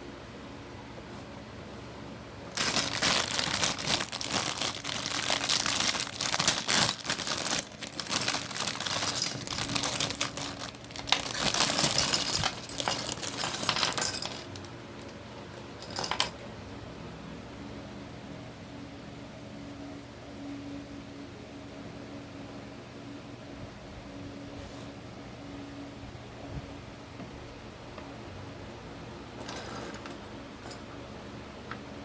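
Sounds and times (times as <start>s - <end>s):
plastic packaging crinkling: 2.5s - 15.2s.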